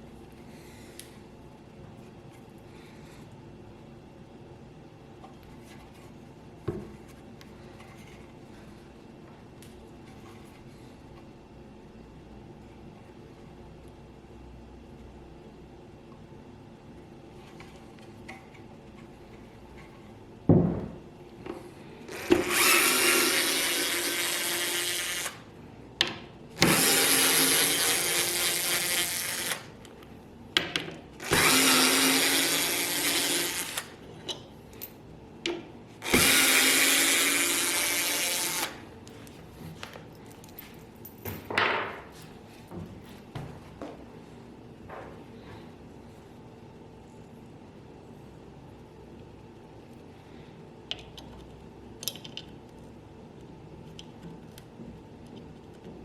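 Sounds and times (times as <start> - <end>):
power tool running: 22.1 - 25.4, 26.6 - 29.7, 31.2 - 34.0, 36.0 - 38.8.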